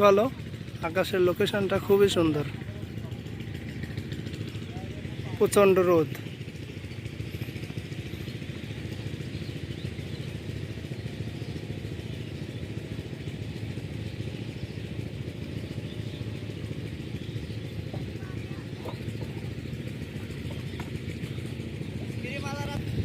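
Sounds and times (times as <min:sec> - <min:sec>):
diesel engine puttering: 0:00.0 - 0:23.0.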